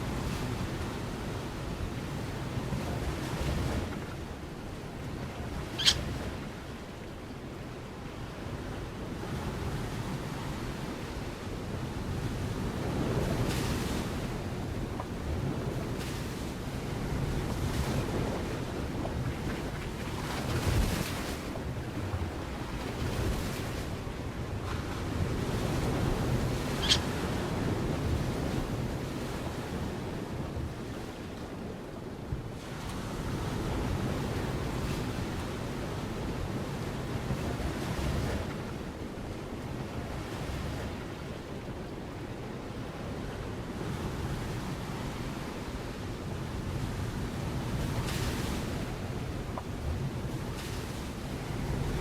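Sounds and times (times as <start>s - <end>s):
high bird chirp: 5.8s - 6.0s
wind buffeting microphone: 7.9s - 52.0s.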